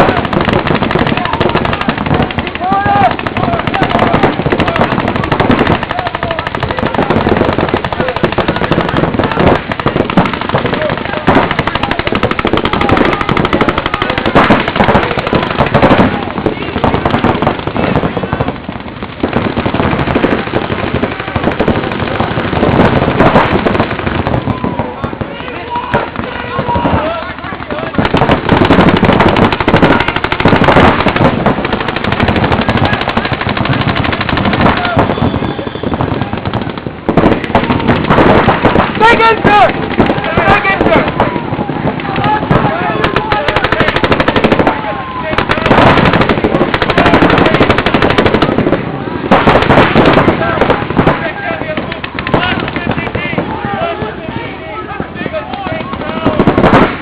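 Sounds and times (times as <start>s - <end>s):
paintball markers firing rapidly: 0.0s - 24.5s, 25.9s - 41.4s, 42.0s - 54.2s
players shouting: 0.0s - 57.0s.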